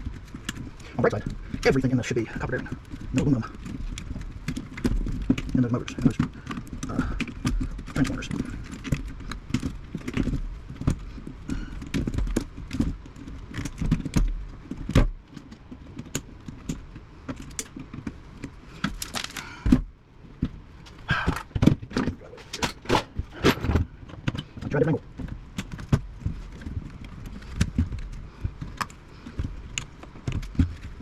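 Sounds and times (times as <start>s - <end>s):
metal parts clinking and rattling: 20.8s - 24.8s
hand tools snipping metal: 22.3s - 23.8s.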